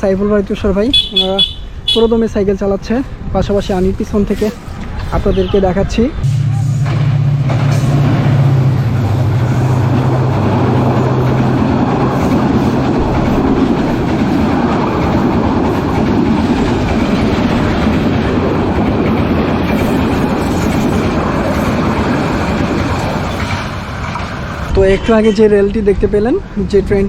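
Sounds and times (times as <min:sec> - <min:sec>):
train wheels clattering on rails: 0:06.6 - 0:24.7.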